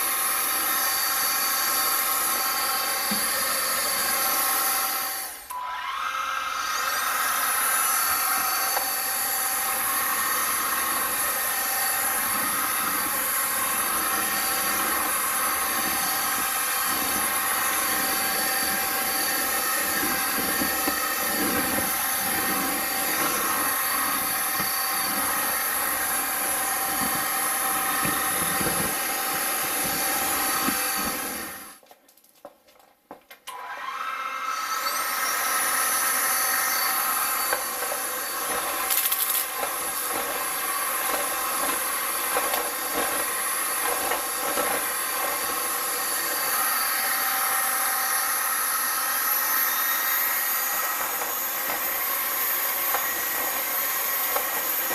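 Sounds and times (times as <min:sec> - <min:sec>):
vacuum cleaner motor whine: 0:00.0 - 0:31.8, 0:33.5 - 0:54.9.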